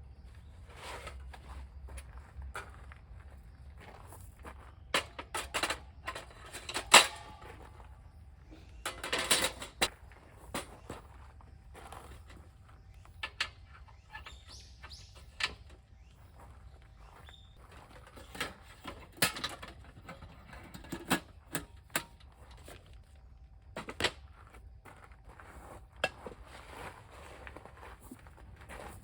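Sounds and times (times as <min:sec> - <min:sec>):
faint bird chirps: 0:10.8 - 0:17.6.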